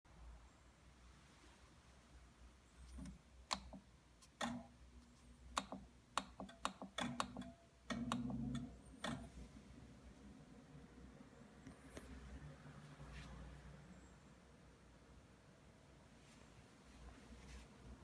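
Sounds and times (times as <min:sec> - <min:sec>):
sharp irregular clicks and taps: 0:02.8 - 0:09.4.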